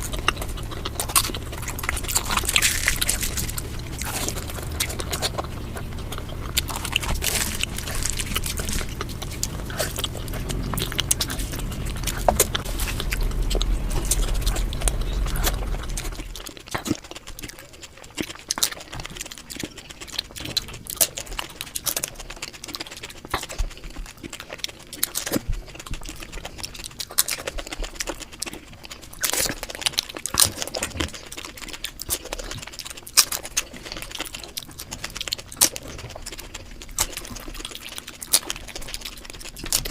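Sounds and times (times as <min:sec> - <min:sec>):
low rumble: 0:00.0 - 0:17.5
chewing and crunching snacks: 0:00.0 - 0:39.9.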